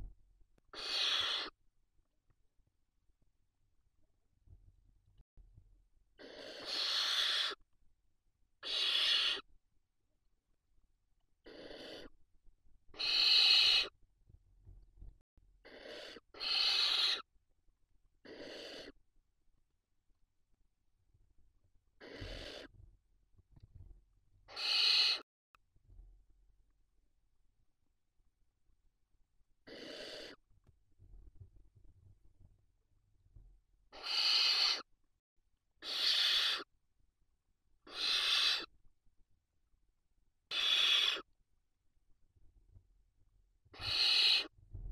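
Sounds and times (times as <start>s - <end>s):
owl chicks hissing calls: 0.7s - 1.6s, 6.2s - 7.6s, 8.6s - 9.5s, 11.4s - 12.2s, 12.9s - 14.0s, 15.6s - 17.3s, 18.2s - 19.0s, 22.0s - 22.7s, 24.5s - 25.2s, 29.6s - 30.4s, 33.9s - 34.9s, 35.8s - 36.7s, 37.8s - 38.7s, 40.5s - 41.3s, 43.7s - 44.6s.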